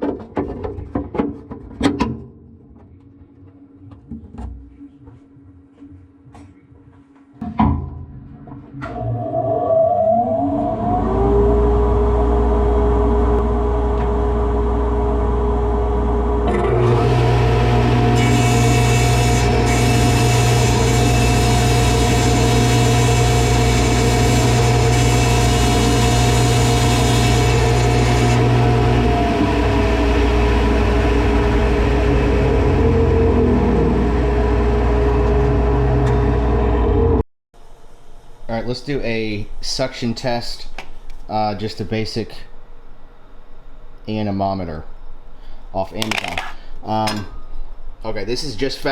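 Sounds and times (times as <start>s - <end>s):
table saw motor whine: 8.8s - 37.2s
dust collector hum and air rush: 10.7s - 40.6s.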